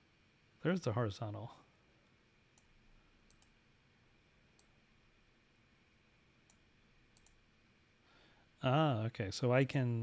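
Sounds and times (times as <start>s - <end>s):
faint computer mouse clicks: 3.3s - 3.6s, 4.6s - 4.8s, 6.5s - 7.4s.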